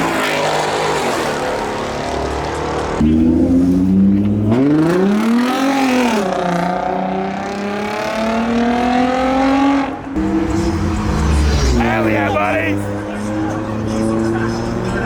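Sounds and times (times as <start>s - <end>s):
car engine revving high: 3.0s - 15.0s.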